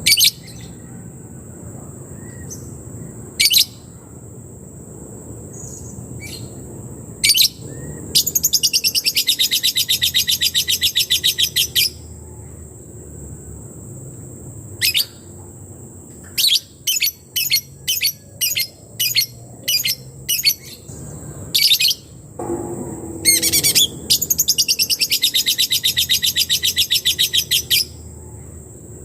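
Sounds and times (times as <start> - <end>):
steady high-pitched tone: 20.9 - 29.0.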